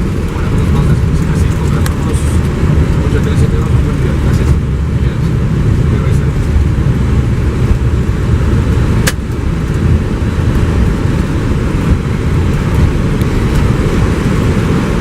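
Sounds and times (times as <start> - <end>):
aircraft low rumble: 0.0 - 15.0
sharp click: 9.0 - 9.4.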